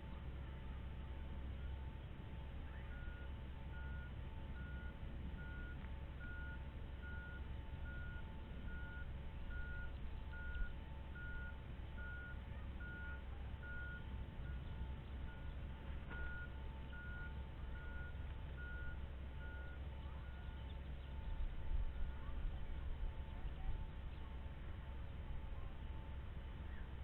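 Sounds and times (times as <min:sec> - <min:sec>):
low rumble: 0:00.0 - 0:27.0
steady beeps at different pitches: 0:02.8 - 0:22.2.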